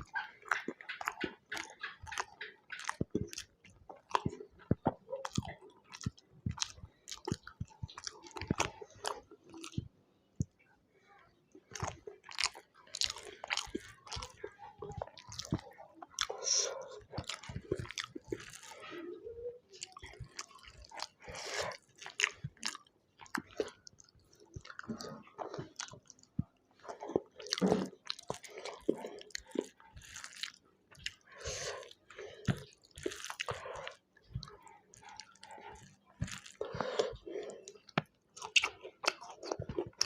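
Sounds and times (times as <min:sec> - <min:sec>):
food crunch: 0:00.0 - 0:09.8, 0:17.0 - 0:19.0, 0:19.8 - 0:40.0
wet mouth clicks and lip smacks: 0:00.0 - 0:09.8, 0:37.9 - 0:40.0
person chewing: 0:00.0 - 0:09.9, 0:11.6 - 0:40.0.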